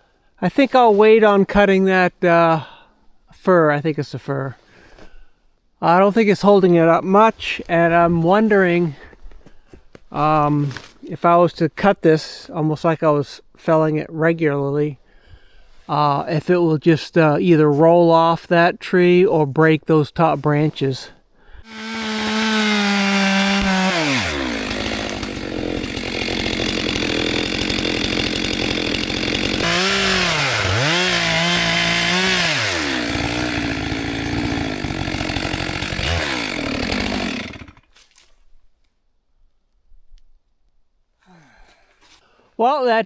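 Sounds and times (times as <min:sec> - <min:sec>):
chainsaw cutting: 0:21.6 - 0:38.0.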